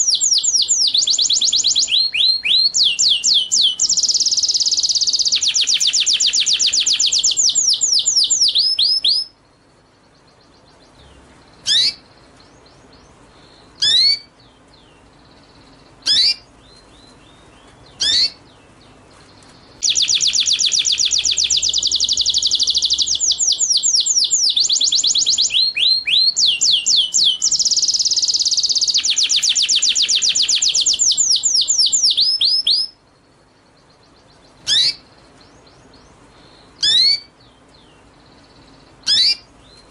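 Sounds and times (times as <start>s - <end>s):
songbird trilling: 0.0s - 19.0s, 19.6s - 39.9s.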